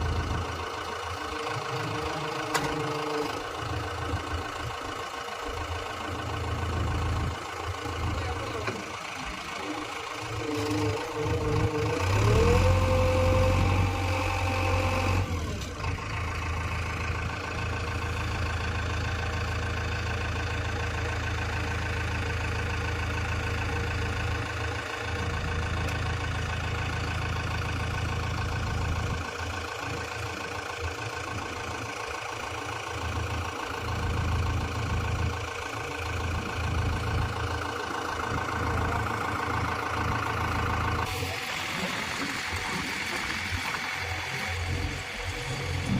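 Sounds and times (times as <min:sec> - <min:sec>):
heavy diesel engine idling: 0:00.0 - 0:45.9.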